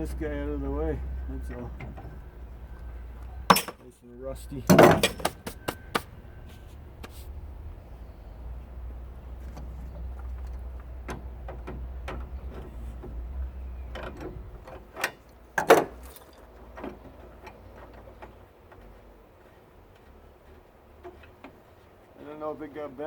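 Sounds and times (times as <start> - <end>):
loud metal clunk: 3.5 - 3.8, 4.7 - 6.0, 14.0 - 16.3
metal parts clinking: 3.5 - 3.8, 4.7 - 5.5.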